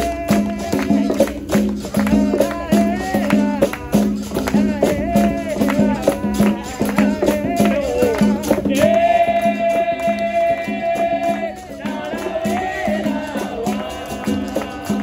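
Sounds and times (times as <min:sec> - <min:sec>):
hand percussion: 0:00.0 - 0:15.0
person singing: 0:00.0 - 0:15.0.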